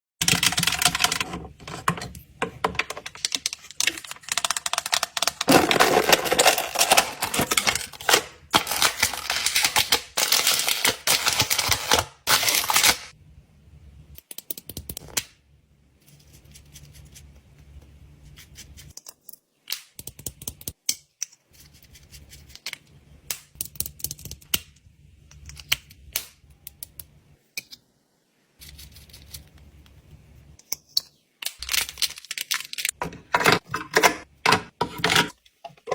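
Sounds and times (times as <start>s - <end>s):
small hard objects clicking: 3.0s - 7.0s.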